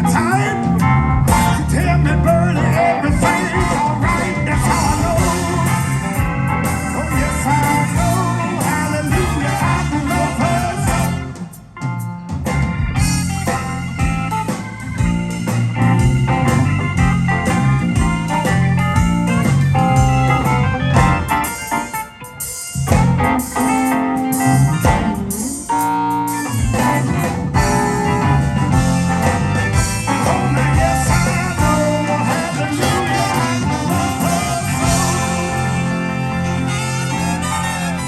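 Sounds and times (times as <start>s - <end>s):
electric guitar: 0.0s - 38.0s
live blues band playing: 0.0s - 38.0s.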